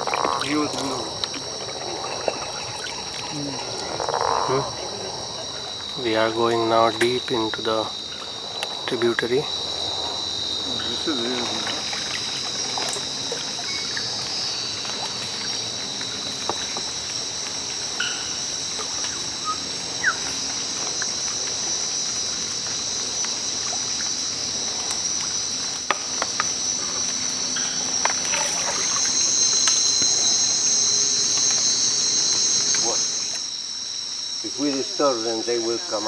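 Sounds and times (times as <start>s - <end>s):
faint trickling water: 0.0s - 25.9s
insect chorus drone: 0.0s - 36.0s.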